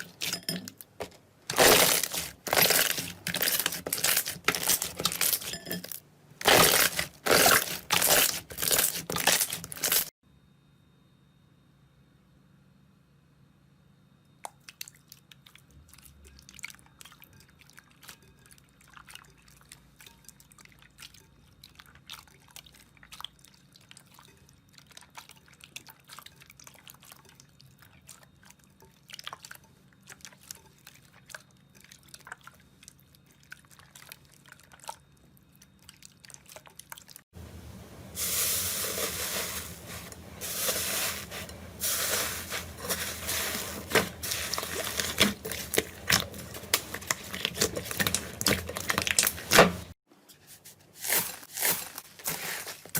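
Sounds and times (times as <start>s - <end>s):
crackling slime squish: 0.8s - 5.6s, 6.4s - 10.1s, 38.8s - 50.0s.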